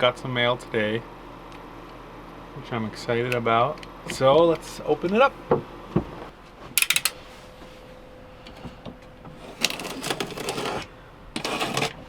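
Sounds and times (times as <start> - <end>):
sharp clicks: 6.8 - 7.2
tape and cardboard tearing: 9.5 - 12.0.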